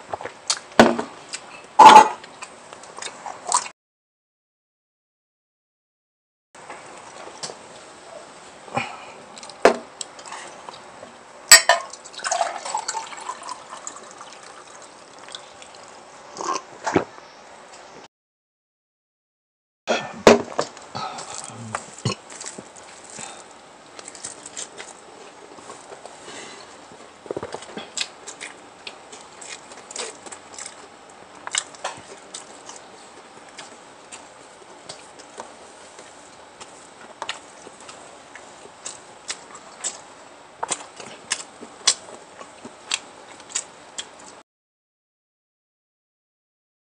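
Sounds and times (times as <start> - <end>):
chewing and mouth noises: 13.8 - 16.7, 21.2 - 44.4
chewing clicks and smacks: 27.4 - 32.8.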